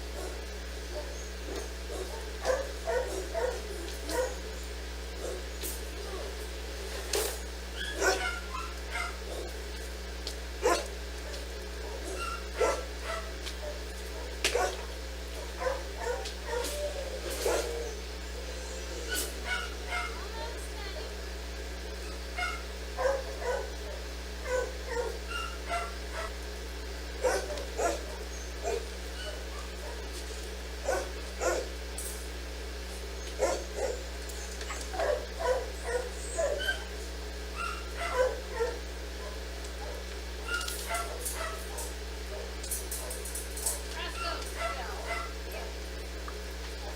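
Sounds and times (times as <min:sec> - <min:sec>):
low electrical hum: 0:00.0 - 0:46.9
dog barking: 0:00.1 - 0:06.4, 0:07.2 - 0:09.6, 0:10.6 - 0:18.0, 0:18.9 - 0:20.3, 0:22.4 - 0:26.4, 0:27.2 - 0:30.1, 0:30.8 - 0:31.8, 0:33.4 - 0:34.1, 0:34.7 - 0:45.8.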